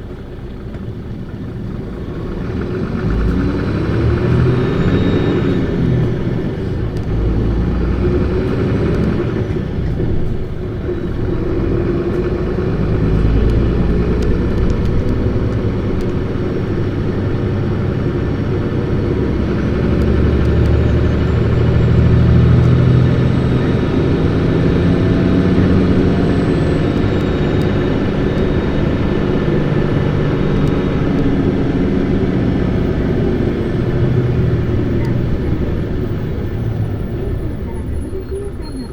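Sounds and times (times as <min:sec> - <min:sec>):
bus diesel engine revving: 0:00.0 - 0:38.9.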